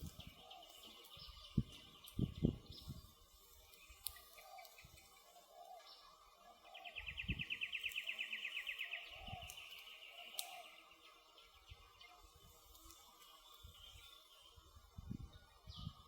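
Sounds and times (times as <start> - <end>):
campfire wood crackling: 0.0 - 5.9, 6.6 - 14.1
songbird trilling: 3.7 - 12.3.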